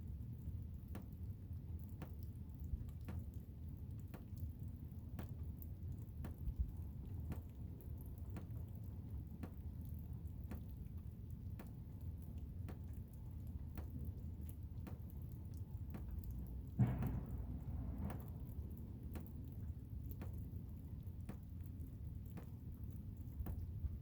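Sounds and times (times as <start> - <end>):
faint sharp clicks: 5.2 - 23.8.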